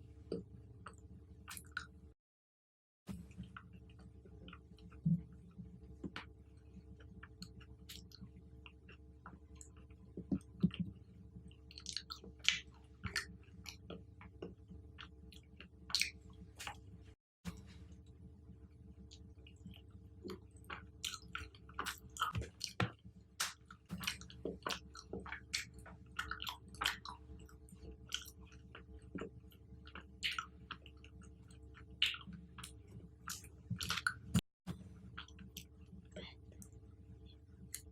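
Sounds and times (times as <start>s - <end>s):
chewing and biting fruit: 11.7s - 16.8s, 19.4s - 22.8s, 23.4s - 34.4s.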